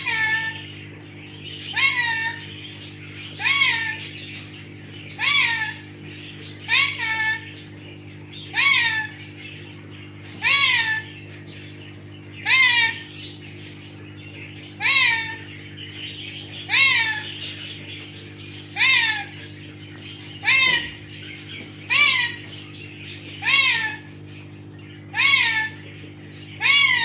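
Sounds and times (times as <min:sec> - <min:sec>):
parrot meow-like call: 0:00.0 - 0:00.6, 0:01.7 - 0:02.4, 0:03.4 - 0:04.0, 0:05.2 - 0:05.8, 0:08.5 - 0:09.2, 0:10.4 - 0:11.1, 0:12.4 - 0:13.0, 0:14.8 - 0:15.4, 0:16.7 - 0:17.3, 0:18.8 - 0:19.3, 0:20.4 - 0:21.0, 0:23.4 - 0:24.1, 0:25.1 - 0:25.8, 0:26.6 - 0:27.0
steady low hum: 0:00.0 - 0:27.0.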